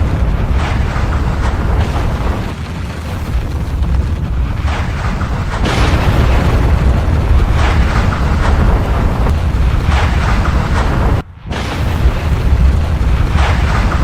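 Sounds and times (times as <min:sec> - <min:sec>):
volcanic bursts: 0:00.0 - 0:14.0
volcano deep rumble: 0:00.0 - 0:14.0.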